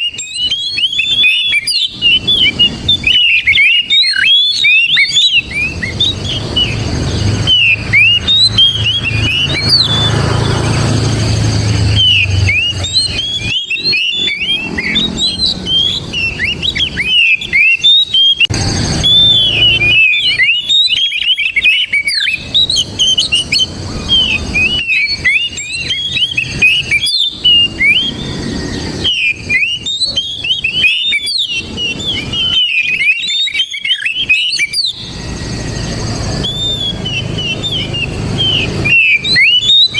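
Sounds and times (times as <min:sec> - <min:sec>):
bird singing whistled notes: 0:00.0 - 0:39.9
low hum: 0:18.5 - 0:20.4.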